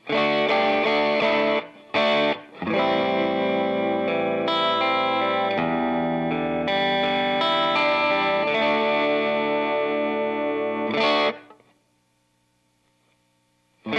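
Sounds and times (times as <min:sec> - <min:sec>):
overdriven electric guitar chords: 0:00.0 - 0:11.7.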